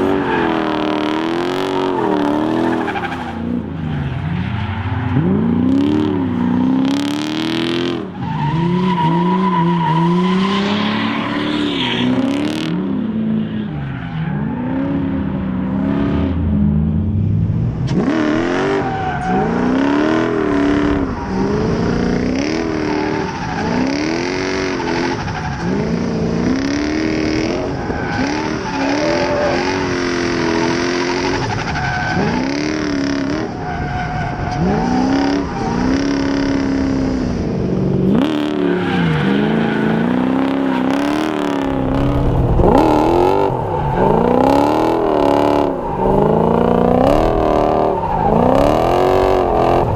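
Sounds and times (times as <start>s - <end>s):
tyre squeal: 0.0s - 12.4s, 27.4s - 36.6s, 38.2s - 49.9s
car engine revving: 0.0s - 49.9s.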